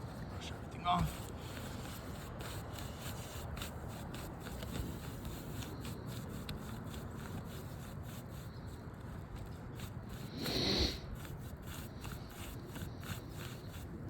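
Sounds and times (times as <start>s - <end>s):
brush sweeping roof shingles: 0.0s - 8.4s.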